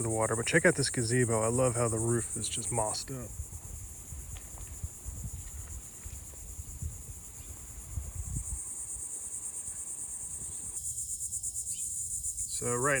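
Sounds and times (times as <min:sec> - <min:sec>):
low uneven rumble: 0:00.0 - 0:08.5
insects buzzing: 0:00.0 - 0:13.0.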